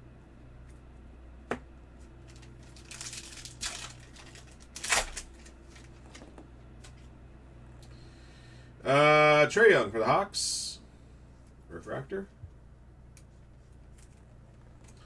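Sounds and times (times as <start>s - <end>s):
plastic packaging crinkling: 2.2s - 7.1s.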